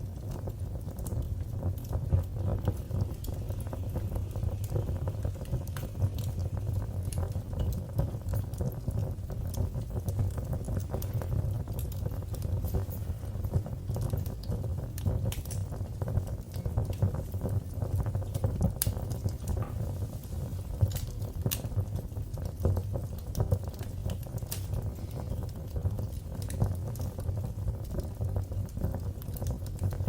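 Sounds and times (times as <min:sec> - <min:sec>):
fireplace fire crackling: 0:00.0 - 0:30.0.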